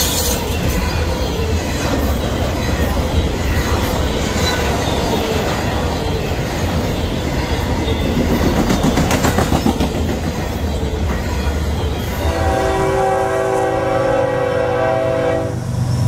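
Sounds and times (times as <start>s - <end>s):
train wheels clattering: 0.0s - 12.3s
locomotive air horn: 12.2s - 15.6s.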